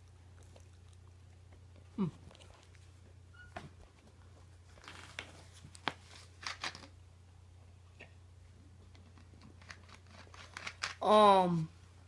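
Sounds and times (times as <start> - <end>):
faint clicks and rustles: 0.4 - 6.9.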